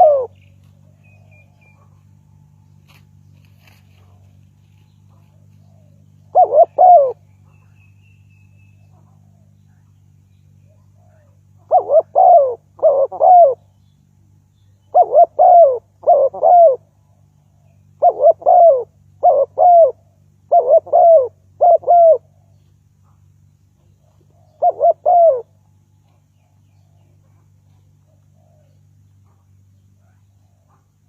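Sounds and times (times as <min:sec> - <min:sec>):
dove cooing: 0:00.0 - 0:02.0, 0:05.0 - 0:07.2, 0:10.9 - 0:13.7, 0:14.9 - 0:16.9, 0:17.9 - 0:22.5, 0:24.0 - 0:25.6
faint low hum: 0:00.0 - 0:31.0.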